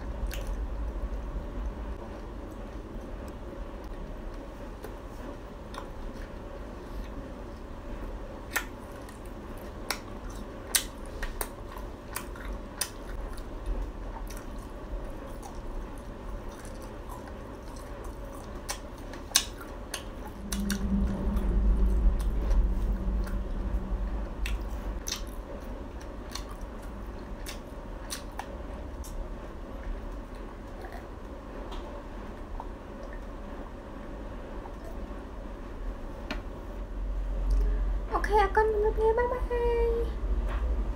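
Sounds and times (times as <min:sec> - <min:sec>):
person chewing: 0:08.5 - 0:20.9, 0:24.4 - 0:29.2
low muffled sound: 0:20.1 - 0:26.3.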